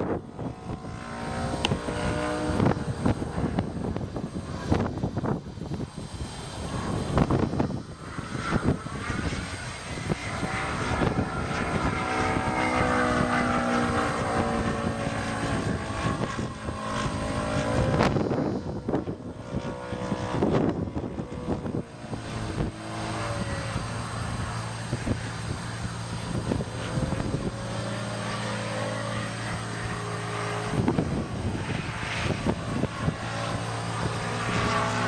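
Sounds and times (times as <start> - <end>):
model airplane motor: 0.0 - 35.0.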